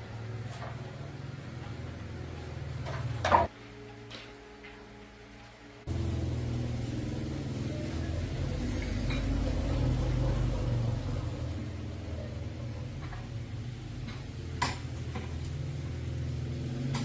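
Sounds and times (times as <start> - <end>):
motorcycle engine running: 5.9 - 17.0.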